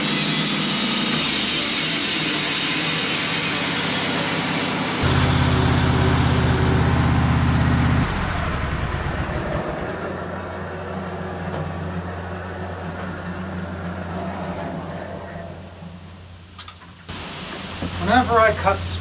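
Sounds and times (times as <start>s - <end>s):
sawmill engine cutting log: 0.0s - 14.8s.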